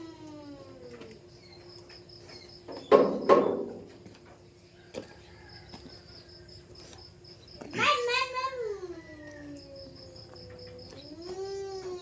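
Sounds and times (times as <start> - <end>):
loud sharp knocks: 2.9 - 3.8
faint insect chirping: 4.5 - 12.0.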